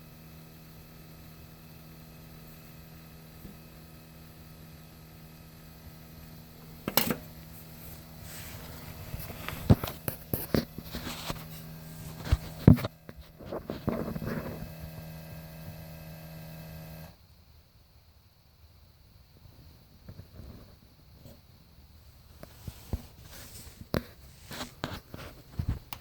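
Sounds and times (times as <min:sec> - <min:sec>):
steady electrical buzz: 0:00.0 - 0:17.7.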